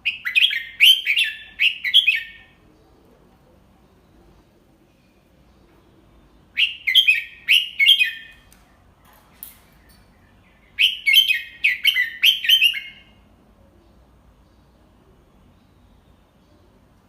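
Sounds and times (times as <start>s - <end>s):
bird singing whistled notes: 0.0s - 2.6s, 6.5s - 8.5s, 9.8s - 13.3s.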